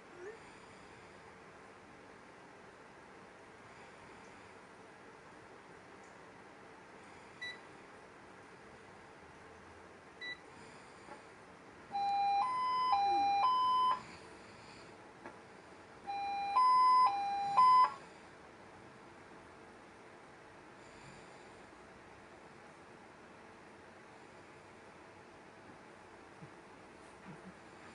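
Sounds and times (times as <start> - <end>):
short high beeps: 12.0 - 14.0
two-tone chime: 12.0 - 14.0, 16.1 - 18.0.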